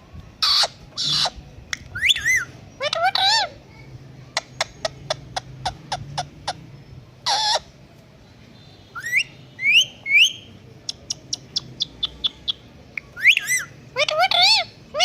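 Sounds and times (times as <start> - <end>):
parakeet squawk: 0.4 - 1.4, 2.0 - 3.5, 7.2 - 7.7, 13.2 - 15.0
parakeet whistled chirps: 2.0 - 2.5, 9.0 - 10.5, 13.2 - 14.7
sharp bird clicks: 10.2 - 13.6.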